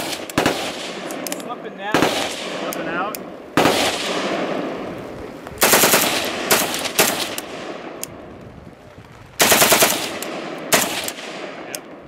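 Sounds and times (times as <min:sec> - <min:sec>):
rifle firing bursts: 0:00.0 - 0:04.7, 0:05.6 - 0:08.0, 0:09.4 - 0:11.8.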